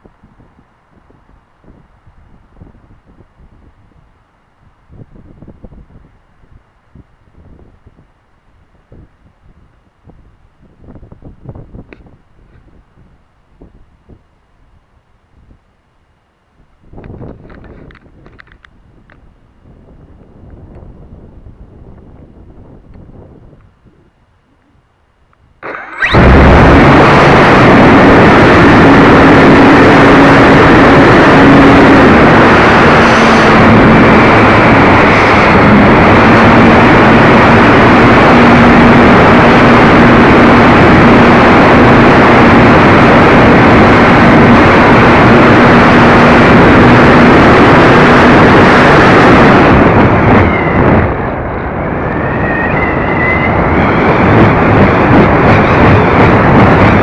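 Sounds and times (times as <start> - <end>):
rushing wind noise: 0.0 - 15.8, 16.5 - 57.0
rising whine: 25.6 - 57.0.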